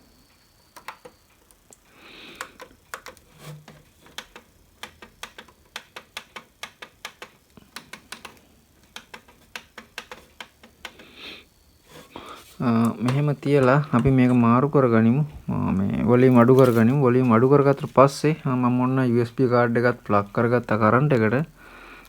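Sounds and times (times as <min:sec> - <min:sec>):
plastic parts clicking: 0:00.7 - 0:11.2, 0:12.0 - 0:14.5
faint rustling: 0:10.9 - 0:22.0.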